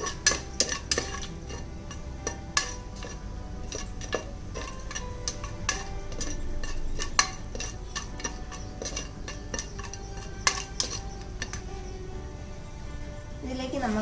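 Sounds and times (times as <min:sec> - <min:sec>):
metal spoon clinking in pot: 0:00.0 - 0:12.0.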